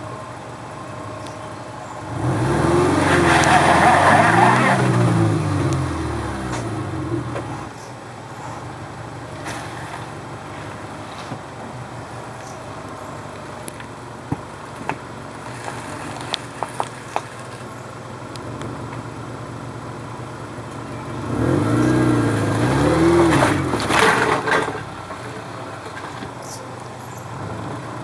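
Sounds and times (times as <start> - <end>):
car engine running: 0.0 - 28.0
engine revving: 0.8 - 13.9, 19.7 - 28.0
tyres scrabbling for grip: 22.4 - 26.6.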